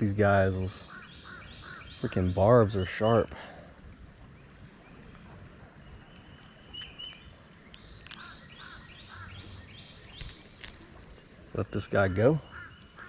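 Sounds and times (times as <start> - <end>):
faint outdoor ambience: 0.0 - 13.0
faint bird chirps: 3.3 - 11.4.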